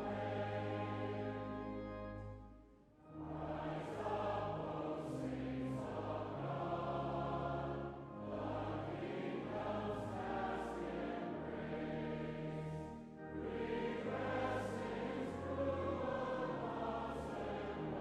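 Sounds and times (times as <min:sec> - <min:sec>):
voices singing a hymn: 0:00.0 - 0:02.4, 0:03.1 - 0:18.0
low sustained accompaniment: 0:00.0 - 0:18.0.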